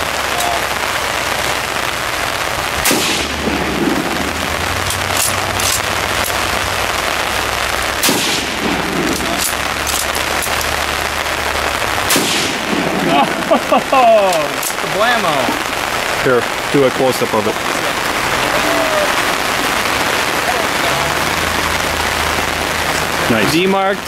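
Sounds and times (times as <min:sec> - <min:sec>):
steady hissing background noise: 0:00.0 - 0:24.0
fainter gunshots: 0:02.7 - 0:06.6, 0:07.9 - 0:21.9
gunshots echoing: 0:02.7 - 0:16.8.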